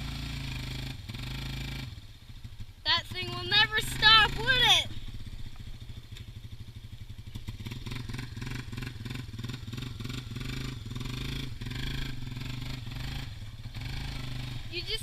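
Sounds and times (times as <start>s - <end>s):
off-road vehicle engine revving: 0.0s - 2.1s, 2.8s - 15.0s.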